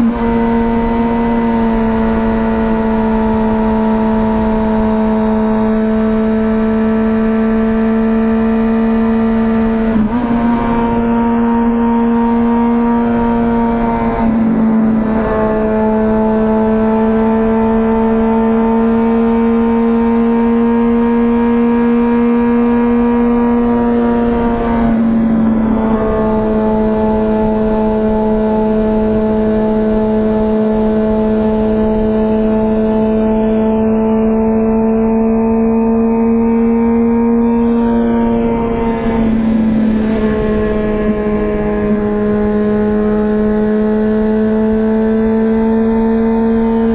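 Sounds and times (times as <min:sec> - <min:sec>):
motorcycle engine at steady throttle: 0:00.0 - 0:46.9
wind on microphone: 0:37.6 - 0:43.0.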